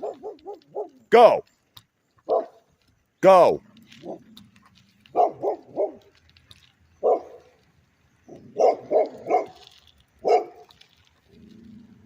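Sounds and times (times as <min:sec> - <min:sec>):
dog barking: 0:00.0 - 0:01.0, 0:02.3 - 0:02.6, 0:05.1 - 0:06.1, 0:07.0 - 0:07.5, 0:08.5 - 0:09.6, 0:10.2 - 0:10.7.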